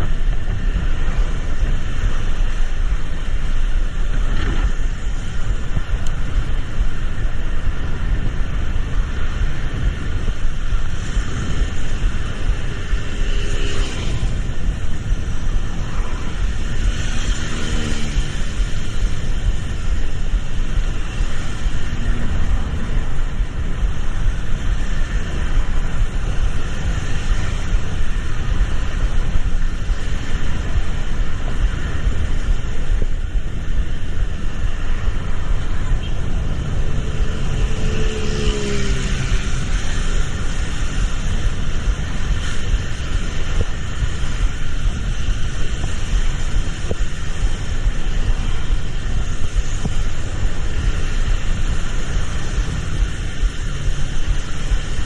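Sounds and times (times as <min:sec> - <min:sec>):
vehicle road noise: 0:00.0 - 0:55.0.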